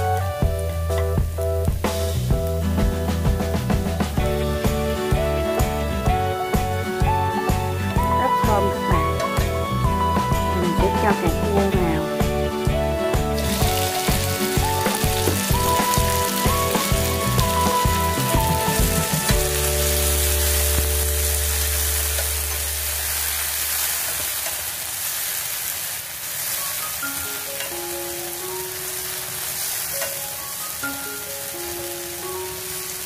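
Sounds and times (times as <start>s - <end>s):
background music with a beat: 0.0s - 21.3s
oil sizzling in a pan: 0.0s - 33.0s.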